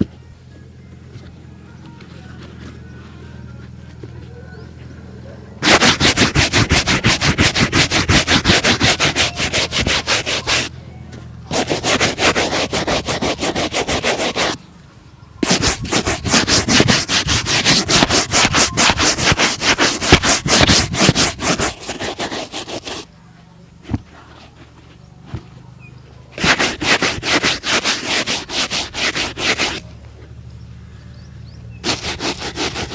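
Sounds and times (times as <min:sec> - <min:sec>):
shoe being buffed: 0:05.6 - 0:10.7, 0:11.5 - 0:14.6, 0:15.4 - 0:23.1, 0:23.8 - 0:25.4, 0:26.4 - 0:29.8, 0:31.8 - 0:32.9.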